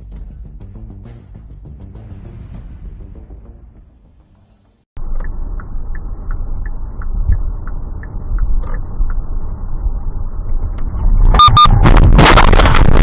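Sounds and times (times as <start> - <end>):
vehicle road rumble: 5.0 - 13.0.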